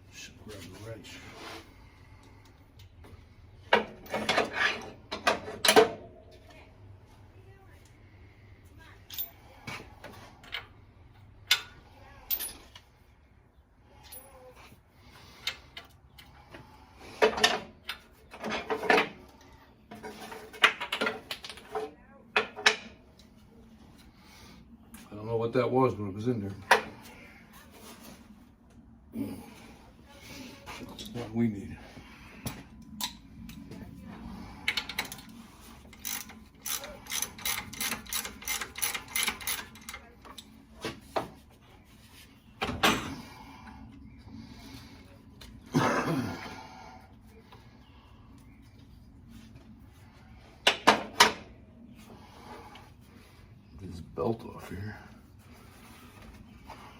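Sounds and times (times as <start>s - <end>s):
tools and metal parts clattering: 3.7s - 6.6s, 9.0s - 13.0s, 17.1s - 23.0s, 34.4s - 41.4s, 42.6s - 43.4s
ratchet wrench clicking: 35.9s - 40.0s.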